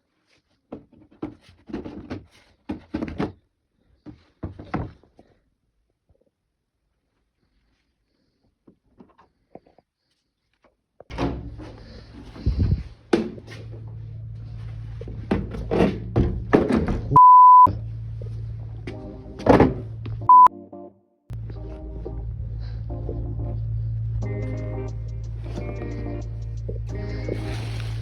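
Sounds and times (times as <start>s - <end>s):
steady low hum: 11.1s - 20.3s, 21.3s - 28.0s
bleep tone: 17.1s - 17.7s, 20.3s - 20.5s.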